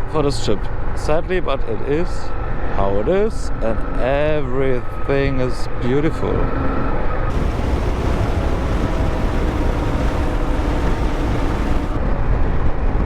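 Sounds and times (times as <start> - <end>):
motorcycle engine and road rumble: 7.3 - 12.4
wind rush over microphone: 7.3 - 13.0.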